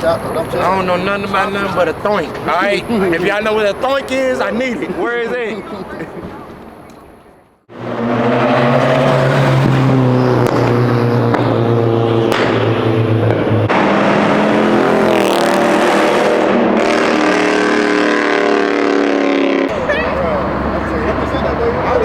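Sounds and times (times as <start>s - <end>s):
loud car engine running: 7.7s - 22.0s.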